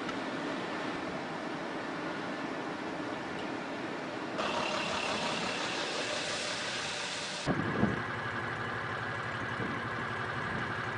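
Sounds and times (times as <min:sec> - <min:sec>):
steady rushing noise: 0:00.0 - 0:08.5
engine idling: 0:04.4 - 0:10.9.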